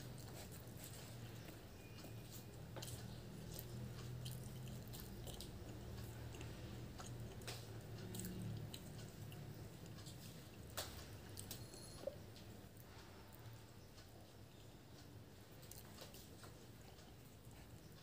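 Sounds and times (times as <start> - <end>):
wet squishes of fingers tearing bread: 0.0 - 11.7, 15.5 - 18.0
chewing with mouth closed: 0.0 - 13.3, 15.5 - 18.0
low steady hum: 0.0 - 18.0.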